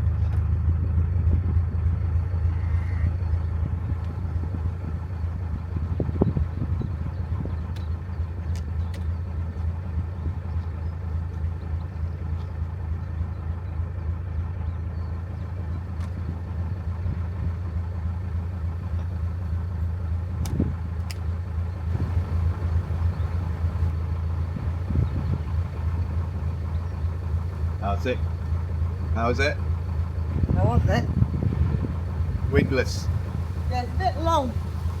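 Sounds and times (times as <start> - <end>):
boat engine humming: 0.0 - 35.0
light clicks: 7.7 - 9.7, 20.4 - 21.3.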